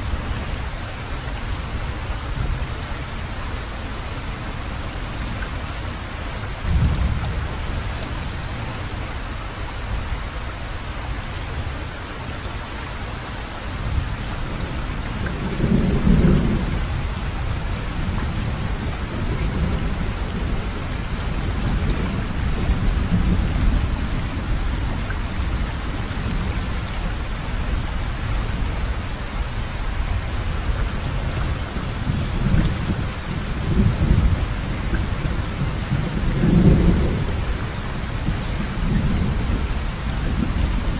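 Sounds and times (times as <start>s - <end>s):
heavy rain: 0.0s - 40.9s
thunder rumbling: 15.4s - 24.7s, 31.0s - 40.9s.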